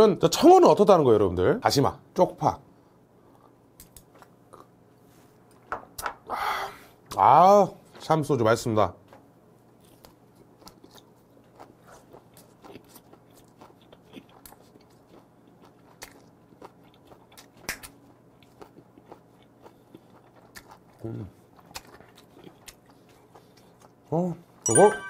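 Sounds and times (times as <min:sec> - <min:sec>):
chewing with soft crunches: 0:03.2 - 0:05.1, 0:09.8 - 0:24.6.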